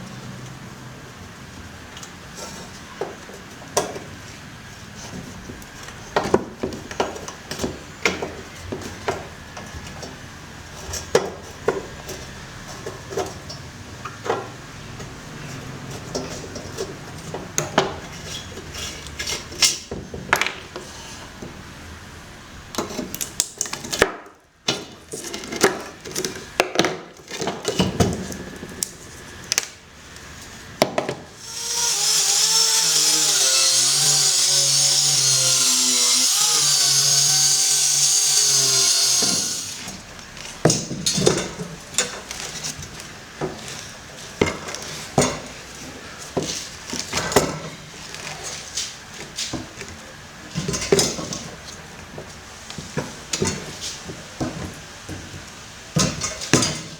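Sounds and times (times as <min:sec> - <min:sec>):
power tool whining: 0:31.4 - 0:40.0.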